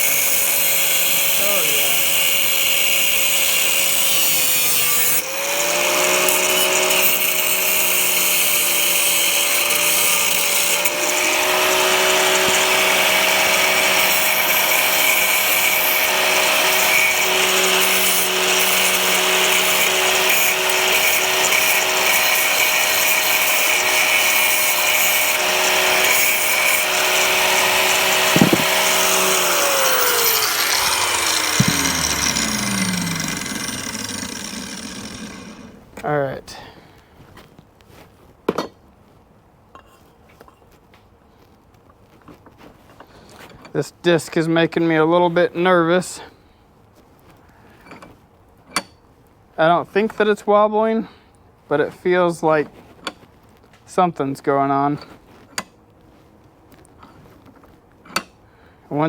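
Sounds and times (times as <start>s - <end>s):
angle grinder cutting metal: 0.0s - 36.1s.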